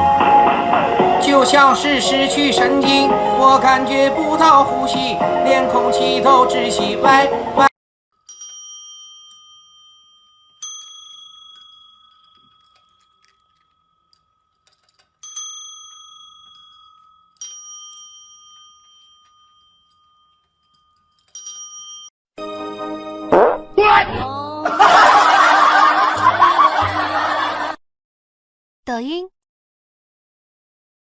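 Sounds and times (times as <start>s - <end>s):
small metal bell ringing: 8.2s - 22.2s.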